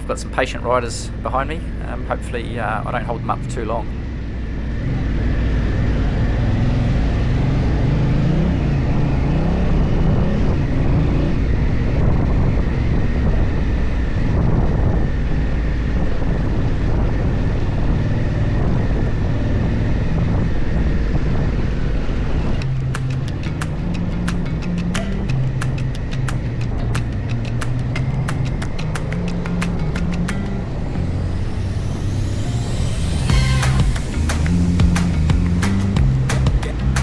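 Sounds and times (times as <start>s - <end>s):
wind buffeting microphone: 2.3s - 33.2s
motorcycle engine at low revs: 3.1s - 32.0s
music with a beat: 22.6s - 30.8s, 33.2s - 37.0s.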